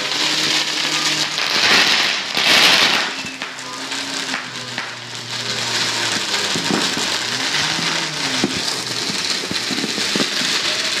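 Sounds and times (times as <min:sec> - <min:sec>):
fireworks crackling: 0:00.0 - 0:11.0
sharp firecracker pops: 0:00.0 - 0:11.0.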